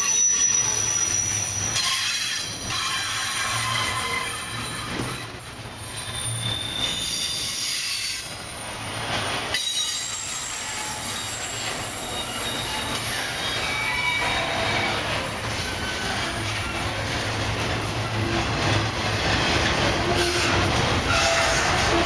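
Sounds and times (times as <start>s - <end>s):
high-pitched wheel squeal: 0.0s - 8.3s, 9.5s - 16.7s
freight train wheels on rails: 0.0s - 22.0s.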